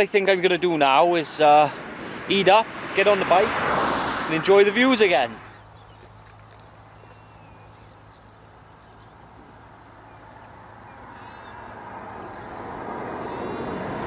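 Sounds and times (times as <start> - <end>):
road vehicle approaching: 0.0 - 14.0
faint bird calls: 5.4 - 12.6.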